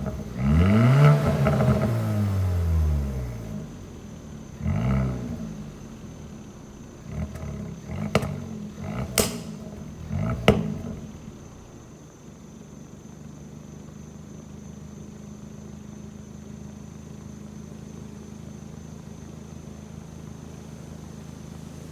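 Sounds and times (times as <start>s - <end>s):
engine throttle blips: 0.0s - 12.0s
exhaust pops: 0.0s - 12.0s
engine idling: 0.0s - 14.0s.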